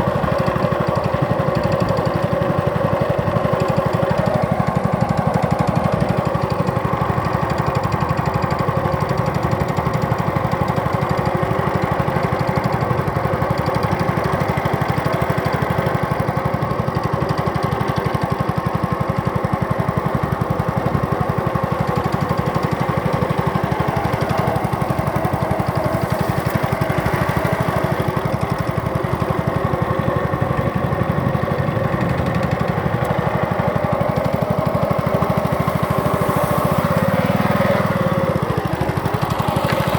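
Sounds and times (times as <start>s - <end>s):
small boat engine running: 0.0s - 39.9s.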